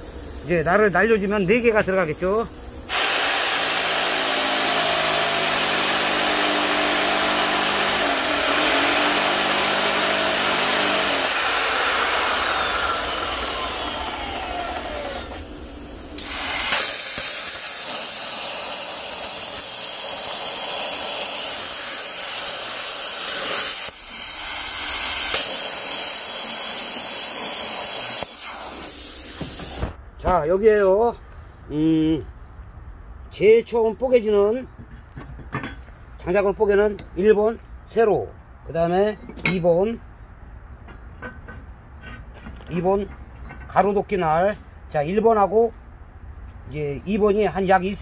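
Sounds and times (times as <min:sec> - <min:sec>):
angle grinder cutting steel: 0:02.9 - 0:29.9.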